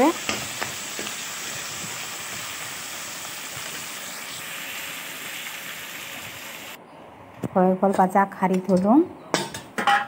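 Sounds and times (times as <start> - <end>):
crab frying in hot oil: 0.0 - 6.8.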